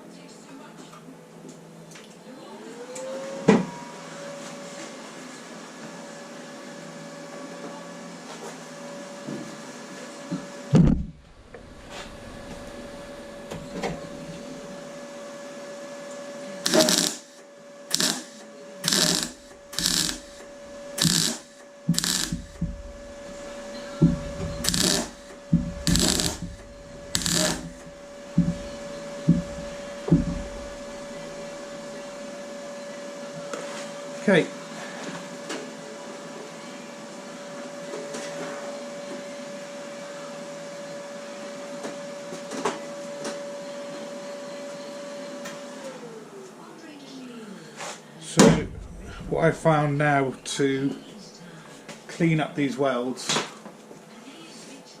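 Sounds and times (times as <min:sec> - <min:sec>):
thump: 0:10.7 - 0:12.1
steady hum: 0:10.7 - 0:15.0, 0:16.5 - 0:32.3, 0:48.4 - 0:51.6
welder bursts on steel: 0:16.6 - 0:23.8, 0:24.6 - 0:28.2.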